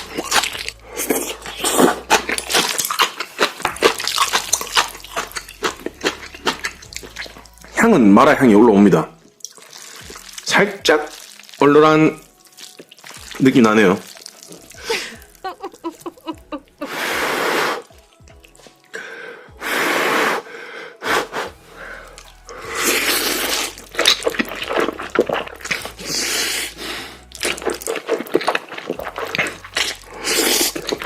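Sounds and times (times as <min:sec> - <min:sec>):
person slurping noodles: 0:00.0 - 0:07.4, 0:16.8 - 0:17.9, 0:19.6 - 0:31.0.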